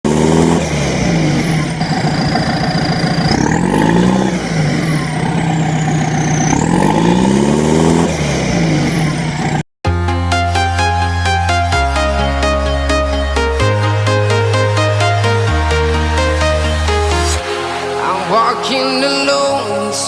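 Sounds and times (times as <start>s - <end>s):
heavy vehicle engine revving: 0.0s - 9.7s, 11.6s - 18.4s
high sweeping whooshes: 12.0s - 20.0s.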